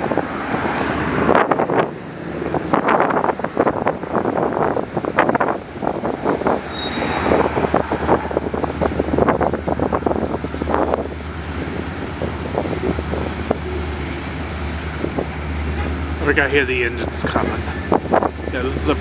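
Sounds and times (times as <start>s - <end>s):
wind buffeting microphone: 0.0s - 19.0s
low engine hum: 7.4s - 19.0s.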